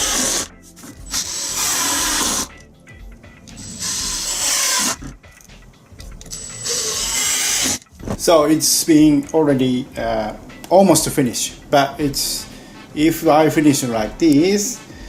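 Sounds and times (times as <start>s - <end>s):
power driver running: 0.0s - 2.6s, 3.5s - 5.2s, 6.3s - 7.9s.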